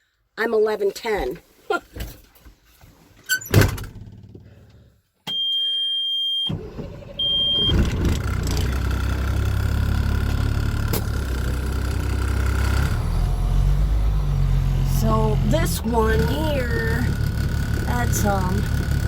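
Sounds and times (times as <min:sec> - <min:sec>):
high warning beep: 0:05.3 - 0:06.5, 0:07.2 - 0:07.8
truck engine starting and idling: 0:06.5 - 0:19.0.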